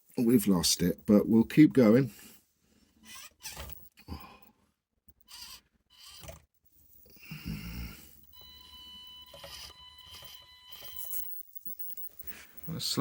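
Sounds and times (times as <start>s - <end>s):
small electric motor whining: 3.0s - 4.2s, 5.2s - 11.4s.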